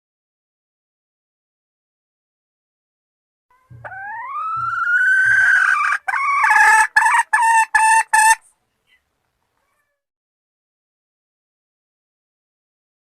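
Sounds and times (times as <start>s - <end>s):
junglefowl hen calling: 3.5s - 9.0s.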